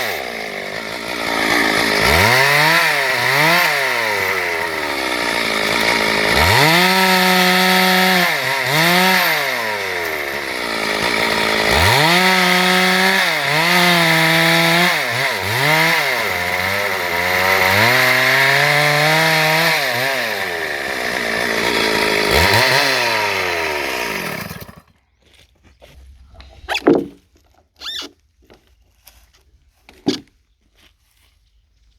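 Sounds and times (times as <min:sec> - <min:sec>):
chainsaw cutting wood: 0:00.0 - 0:25.0, 0:27.8 - 0:28.2.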